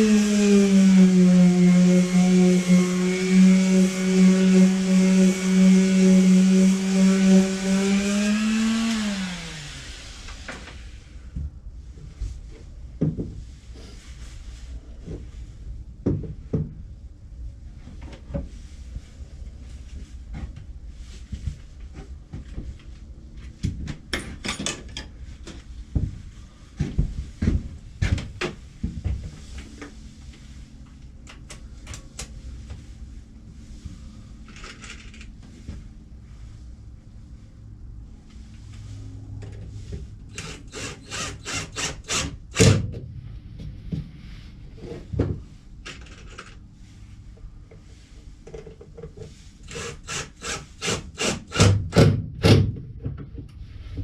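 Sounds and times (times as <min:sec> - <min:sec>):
hand sawing or sanding wood: 0:00.0 - 0:10.5, 0:49.4 - 0:51.7.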